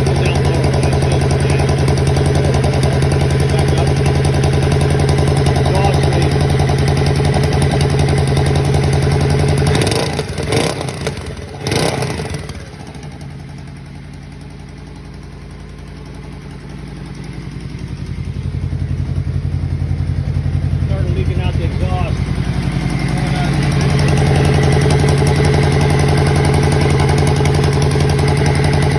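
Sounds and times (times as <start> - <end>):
motorcycle engine idling: 0.0 - 28.9.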